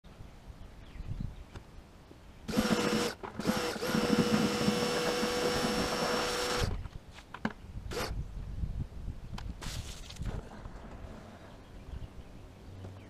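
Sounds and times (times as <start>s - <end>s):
electric drill motor running: 2.5s - 6.8s.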